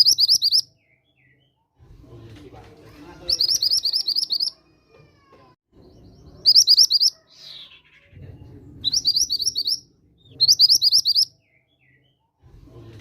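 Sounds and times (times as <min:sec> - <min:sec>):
bird chirping: 0:00.0 - 0:01.7, 0:02.9 - 0:04.8, 0:05.8 - 0:12.4.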